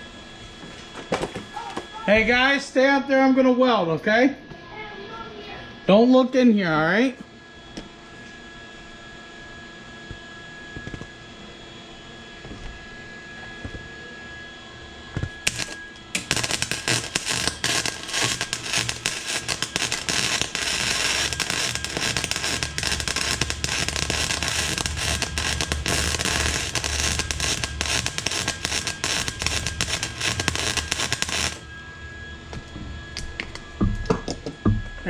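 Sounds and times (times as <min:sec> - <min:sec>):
arc welding crackling: 0:00.8 - 0:02.6, 0:10.7 - 0:11.2, 0:13.6 - 0:13.9, 0:15.1 - 0:31.7
welding arc strikes: 0:15.1 - 0:31.7.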